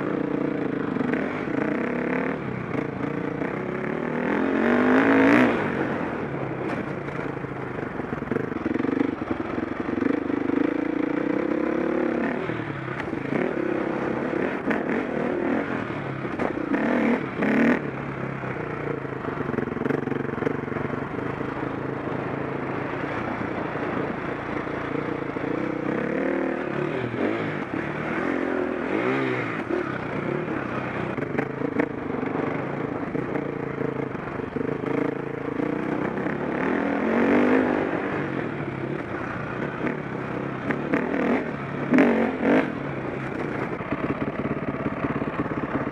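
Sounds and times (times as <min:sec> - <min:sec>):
motocross bike engine revving: 0:00.1 - 0:06.2, 0:10.0 - 0:17.8, 0:22.9 - 0:33.4, 0:34.7 - 0:45.9.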